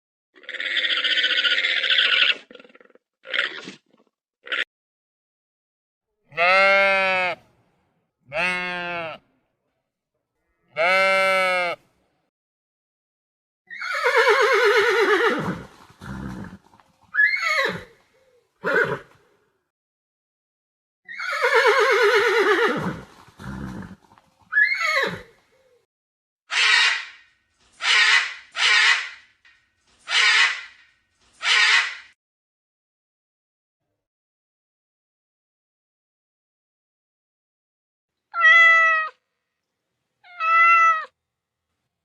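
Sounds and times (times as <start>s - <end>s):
horse neighing: 0.4s - 3.8s, 13.7s - 18.0s, 18.6s - 19.2s, 21.1s - 25.4s.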